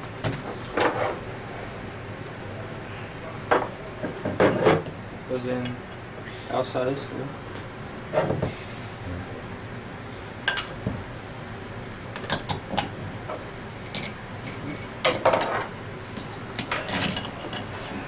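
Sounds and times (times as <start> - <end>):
metal tools clinking on workbench: 13.3 - 17.7.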